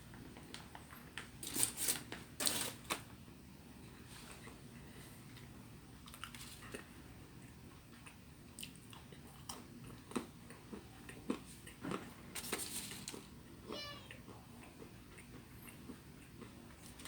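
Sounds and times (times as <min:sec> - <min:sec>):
person chewing food: 0:04.4 - 0:13.2, 0:14.3 - 0:17.0.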